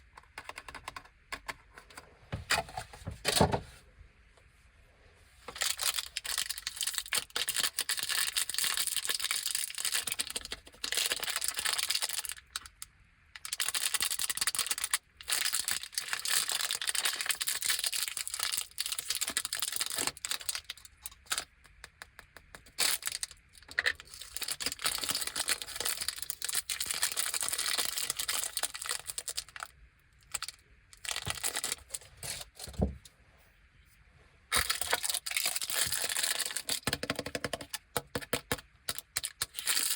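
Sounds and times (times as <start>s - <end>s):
plastic wrappers crinkling and tearing: 5.5s - 12.8s, 13.4s - 21.6s, 22.7s - 32.8s, 34.5s - 37.8s, 38.9s - 39.9s.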